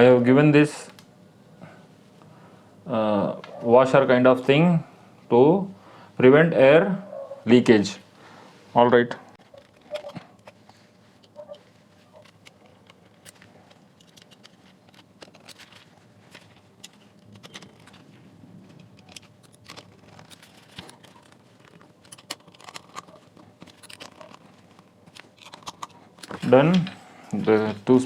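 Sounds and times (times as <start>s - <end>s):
clicks and rattles of plastic housing: 9.4s - 11.4s, 12.1s - 18.1s, 18.7s - 26.9s.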